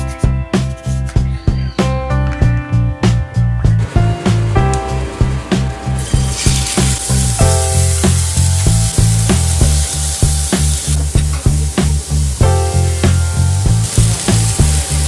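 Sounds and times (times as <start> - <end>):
background music with a beat: 0.0 - 15.0
chicken sizzling in a frying pan: 6.0 - 15.0.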